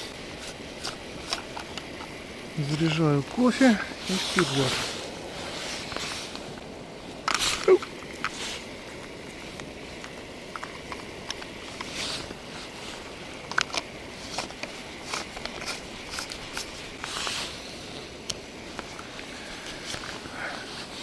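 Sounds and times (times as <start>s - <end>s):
espresso maker handling clicks and scrapes: 0.0s - 2.2s, 13.4s - 17.3s
short hissing: 3.6s - 6.6s, 7.3s - 8.8s, 17.0s - 18.2s.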